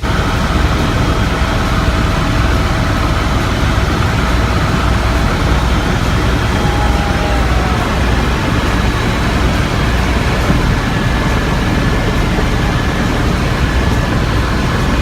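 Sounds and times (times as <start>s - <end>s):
helicopter rotor and engine drone: 0.0s - 15.0s.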